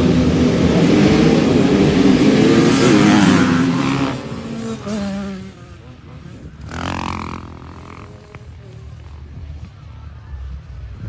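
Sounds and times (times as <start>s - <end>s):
motocross bikes revving: 0.0s - 11.0s.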